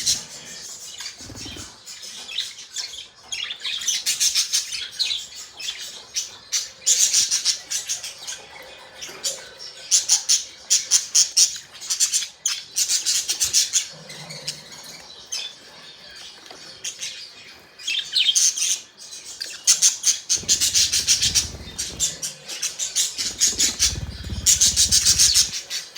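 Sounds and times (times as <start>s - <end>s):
budgerigars chattering: 20.1s - 25.8s.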